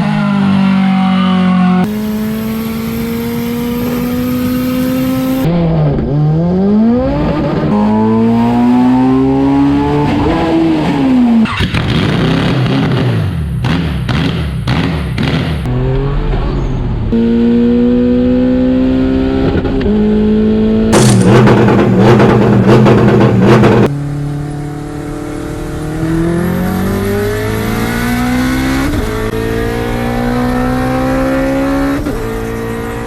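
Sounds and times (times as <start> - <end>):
car engine accelerating: 0.0 - 33.0
loud rushing noise: 20.9 - 23.9.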